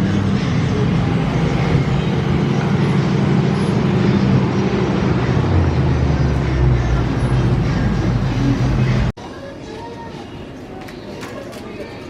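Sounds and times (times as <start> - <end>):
car engine and road noise: 0.0 - 9.2.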